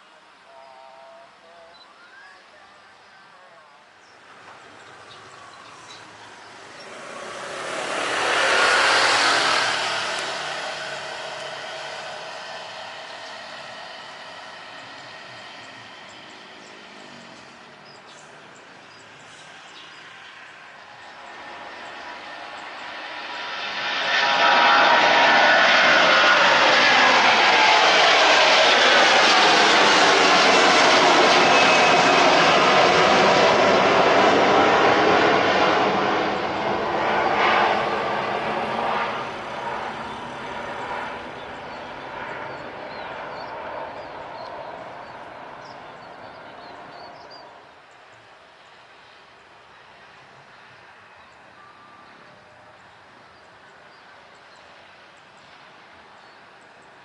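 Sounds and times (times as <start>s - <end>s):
jet engines running: 4.2s - 57.0s
vehicle passing by: 5.4s - 14.8s.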